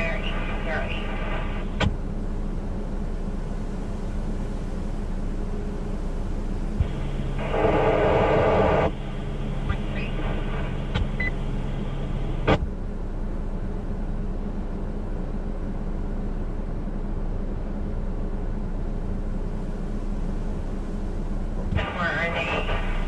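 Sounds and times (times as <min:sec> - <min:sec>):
radio receiver hiss: 0:00.0 - 0:02.0, 0:06.7 - 0:12.6, 0:21.7 - 0:23.0
low electrical hum: 0:00.0 - 0:23.0.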